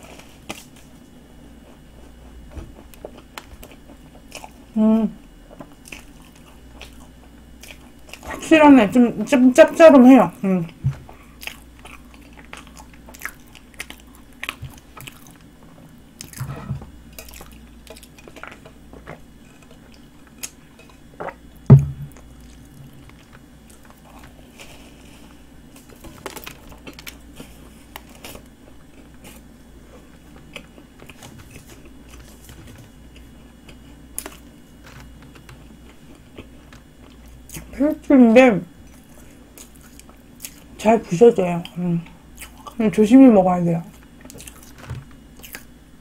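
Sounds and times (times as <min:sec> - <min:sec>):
chewing flaky pastry: 0:00.0 - 0:08.5, 0:09.7 - 0:21.5, 0:22.2 - 0:38.1, 0:38.8 - 0:40.9, 0:41.5 - 0:43.0, 0:43.9 - 0:45.8
low thump: 0:21.7 - 0:22.2.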